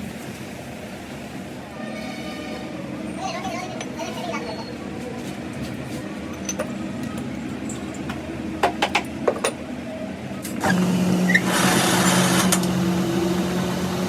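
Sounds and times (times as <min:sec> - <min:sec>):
workshop machine humming: 0:03.8 - 0:14.0.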